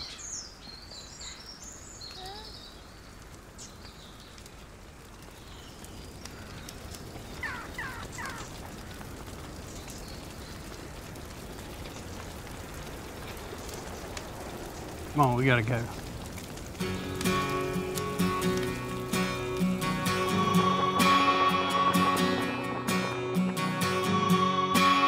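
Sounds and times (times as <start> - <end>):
small birds chirping: 0.0 - 16.1.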